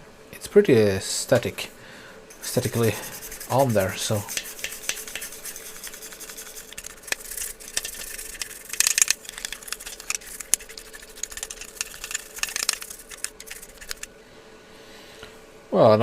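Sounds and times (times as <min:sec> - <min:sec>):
toothbrush scraping paper: 0:02.4 - 0:14.1.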